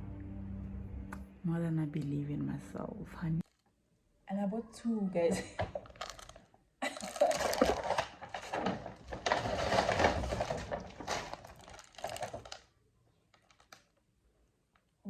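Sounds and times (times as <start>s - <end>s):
plastic packaging crinkling: 5.7s - 14.0s.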